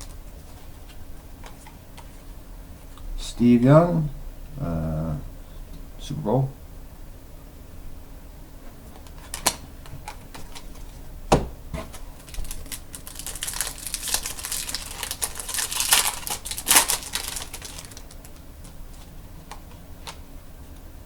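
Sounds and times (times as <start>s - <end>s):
foil wrapper crinkling and tearing: 11.9s - 18.5s
card and wrapper clicks: 12.2s - 18.4s.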